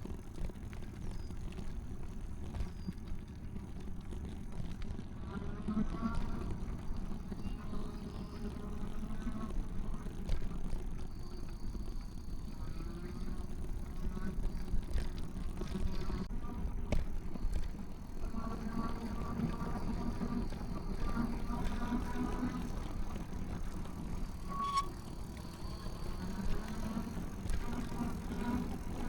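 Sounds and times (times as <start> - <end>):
faint wavering tone: 24.1 - 27.0.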